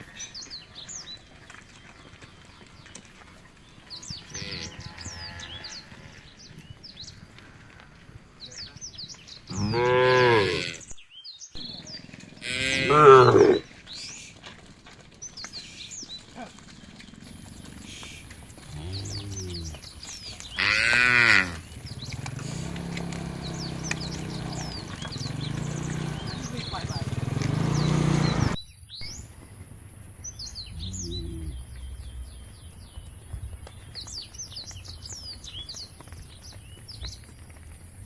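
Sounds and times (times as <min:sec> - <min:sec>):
cows mooing: 0:04.1 - 0:06.4, 0:09.5 - 0:10.9, 0:11.6 - 0:14.7, 0:15.5 - 0:28.6.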